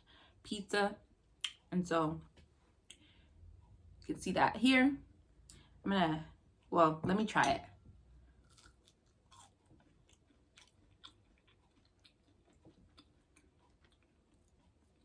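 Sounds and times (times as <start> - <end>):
faint chewing: 8.3 - 15.0.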